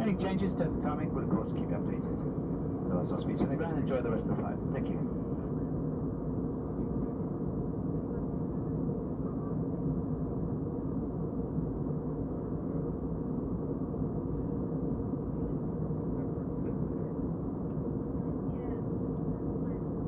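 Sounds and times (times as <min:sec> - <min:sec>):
airliner cabin roar: 0:00.0 - 0:09.2
faint hum: 0:00.0 - 0:20.0.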